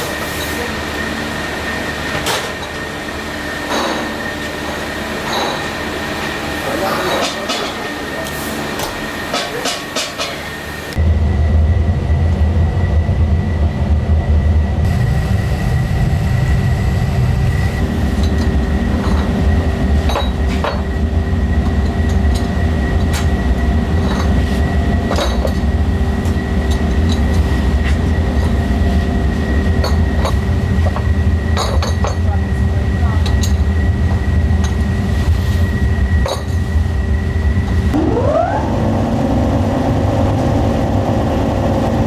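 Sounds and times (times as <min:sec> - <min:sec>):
factory machinery rumble: 0:00.0 - 0:42.0
machinery high whine: 0:10.4 - 0:42.0.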